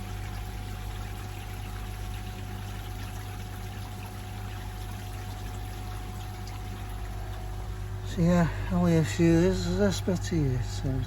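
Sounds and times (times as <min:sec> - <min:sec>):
water pouring into pond: 0:00.0 - 0:07.6
steady low hum: 0:00.0 - 0:11.0.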